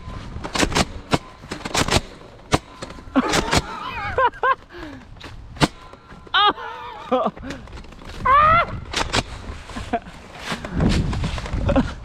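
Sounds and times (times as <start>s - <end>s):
toy blaster shots: 0.5s - 4.0s, 5.6s - 6.1s.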